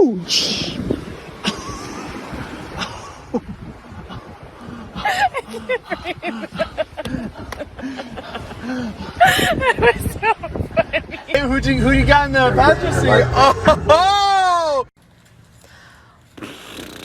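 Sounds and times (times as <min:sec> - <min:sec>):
people laughing and talking: 0:05.0 - 0:14.9.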